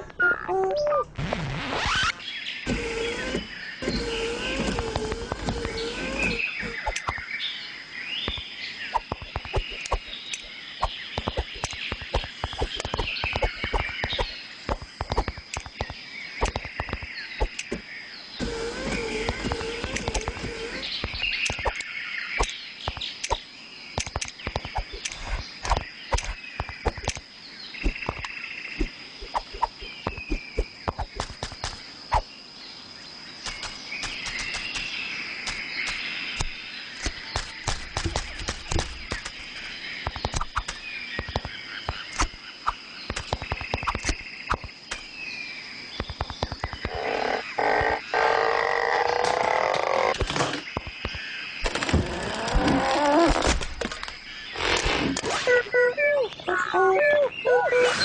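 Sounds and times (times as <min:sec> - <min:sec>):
frogs croaking with clicks: 0:02.7 - 0:57.9
short chirping calls: 0:54.0 - 0:58.0.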